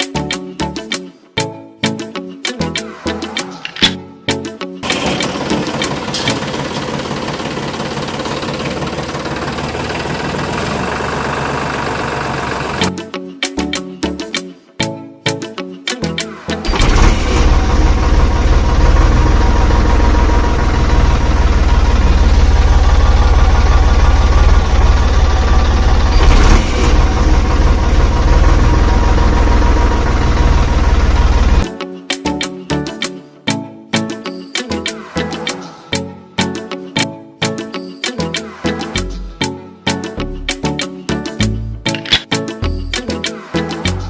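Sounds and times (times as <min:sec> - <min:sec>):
small motor running with rattle: 0:05.0 - 0:12.8.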